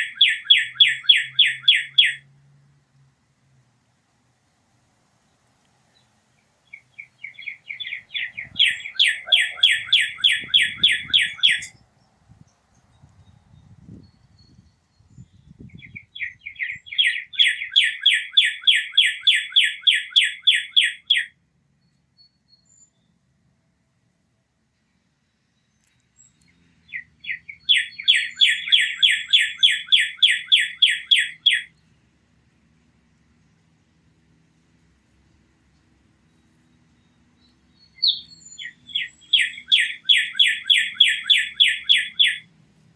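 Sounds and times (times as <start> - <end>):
bird singing repeated notes: 0.0 - 2.3, 6.6 - 11.9, 13.2 - 21.3, 26.2 - 31.7, 36.2 - 42.5
songbird whistling song: 0.0 - 2.3, 5.9 - 23.2, 25.3 - 31.9, 35.3 - 42.5.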